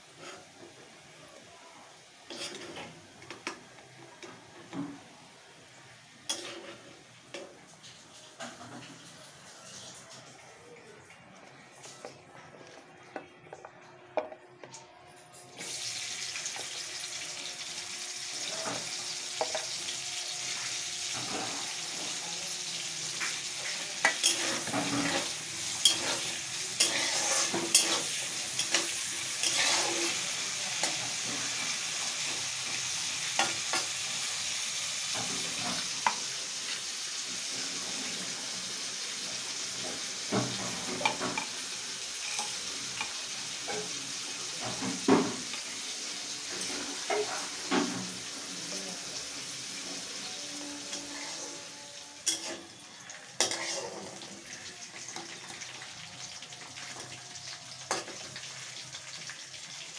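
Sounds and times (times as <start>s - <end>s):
vegetables sizzling in oil: 0.0s - 9.7s, 15.5s - 59.9s
metal spatula scraping pan: 2.3s - 3.4s, 6.3s - 7.0s, 23.6s - 31.7s, 49.9s - 52.8s, 53.4s - 54.3s.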